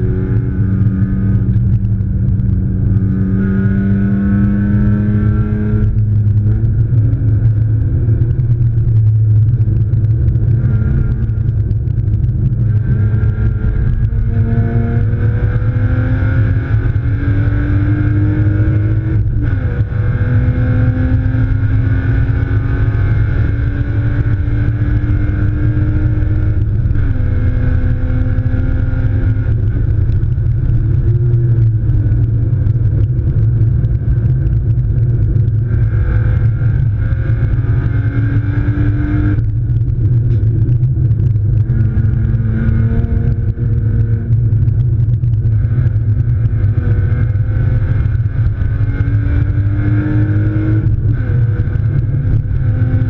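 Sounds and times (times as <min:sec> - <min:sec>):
car engine accelerating hard: 0:00.0 - 0:53.0
road and wind rumble: 0:00.0 - 0:53.0.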